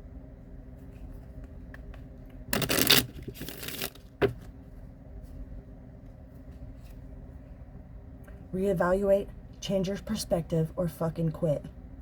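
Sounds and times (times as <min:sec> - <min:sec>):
cards rustling: 0:02.6 - 0:04.0.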